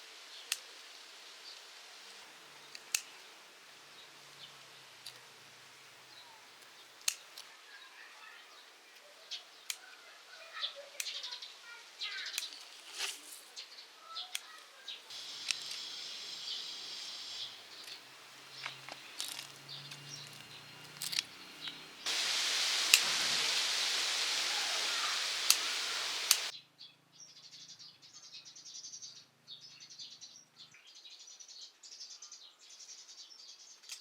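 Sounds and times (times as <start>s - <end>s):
small birds chirping: 0.3s - 34.0s
sharp clicks and snaps: 0.5s - 0.7s, 2.7s - 3.2s, 6.6s - 7.5s, 14.3s - 16.0s, 18.6s - 26.5s.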